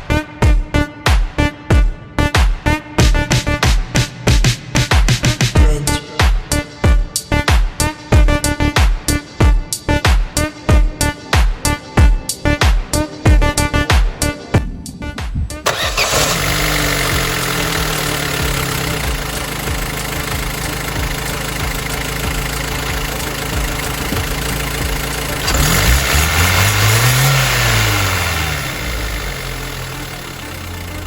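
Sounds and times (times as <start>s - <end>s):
car engine idling and revving: 15.5s - 31.0s.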